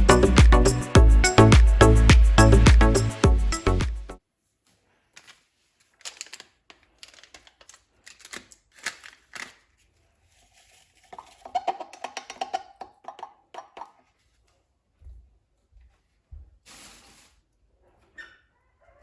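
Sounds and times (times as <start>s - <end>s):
objects being handled: 4.4s - 18.2s.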